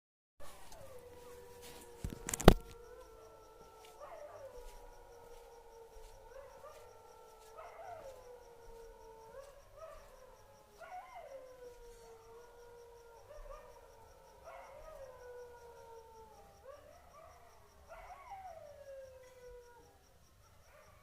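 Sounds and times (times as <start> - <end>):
dogs howling: 0.4 - 21.0.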